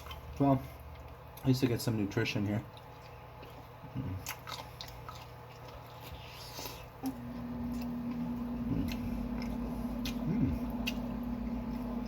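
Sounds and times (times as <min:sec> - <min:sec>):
wet chewing of noodles: 0:00.0 - 0:12.0
steady low hum: 0:02.6 - 0:12.0.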